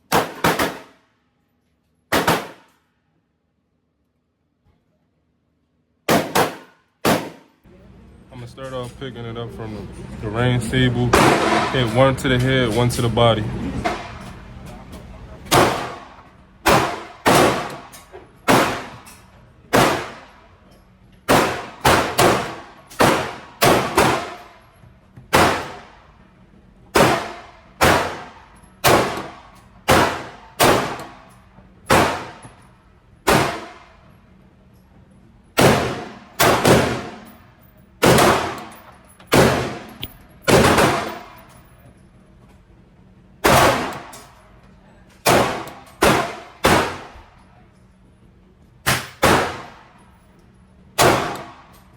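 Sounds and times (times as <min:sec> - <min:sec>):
pistol shots ringing indoors: 0:00.0 - 0:01.2, 0:02.1 - 0:02.9, 0:06.0 - 0:07.7, 0:11.1 - 0:12.0, 0:15.4 - 0:42.0, 0:43.4 - 0:48.0, 0:48.8 - 0:51.9.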